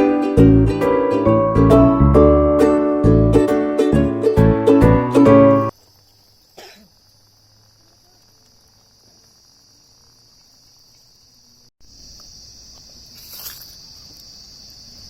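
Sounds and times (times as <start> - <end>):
insects chirring: 5.7 - 15.0
brief rustle: 13.1 - 14.2.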